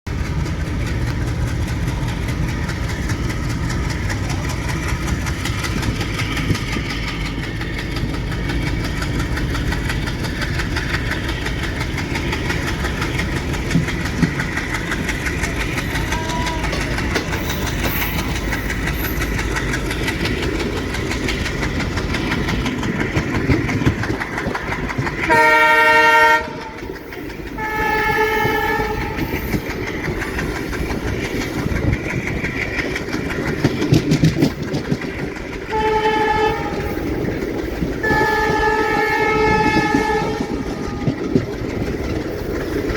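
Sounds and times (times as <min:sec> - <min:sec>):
diesel locomotive engine and rail noise: 0:00.1 - 0:42.9
locomotive horn blasts: 0:25.3 - 0:26.8, 0:27.6 - 0:29.4, 0:35.7 - 0:37.1, 0:38.0 - 0:41.3.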